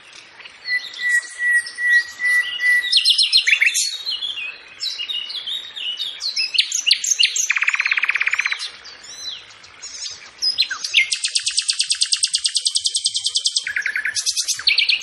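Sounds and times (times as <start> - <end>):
songbirds chirping: 0.0 - 15.0
bird trilling: 6.4 - 8.7, 9.8 - 15.0.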